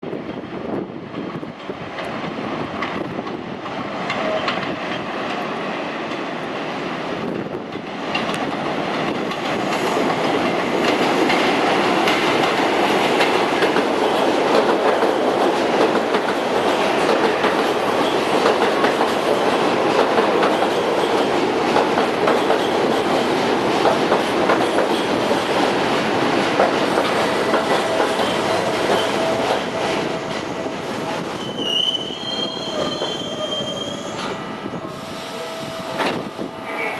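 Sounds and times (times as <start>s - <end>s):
subway train running on track: 0.0s - 36.9s
wheels clacking over rail joints: 7.7s - 30.6s.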